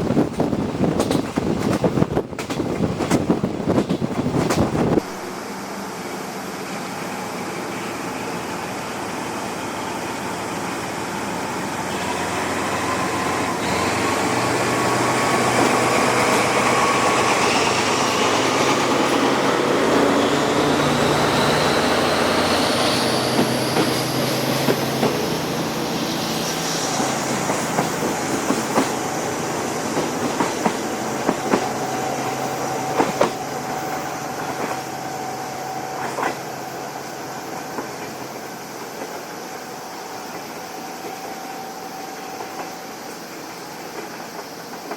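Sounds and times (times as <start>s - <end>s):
wheels clacking over rail joints: 0.0s - 5.0s, 13.7s - 25.4s, 27.0s - 33.5s
train running rumble: 0.0s - 44.9s.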